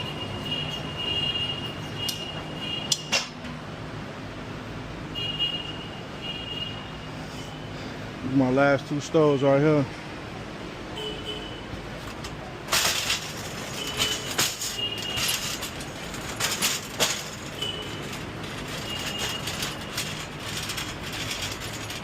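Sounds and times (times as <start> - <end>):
metal carts rattling and clanking: 0.0 - 3.6, 11.8 - 22.0.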